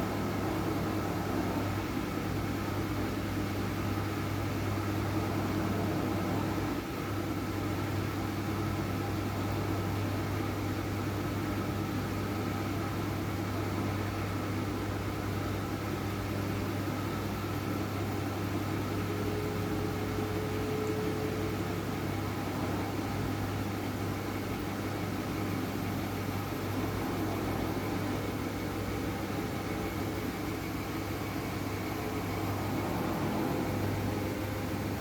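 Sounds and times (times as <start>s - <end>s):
washing machine running: 0.0s - 35.0s.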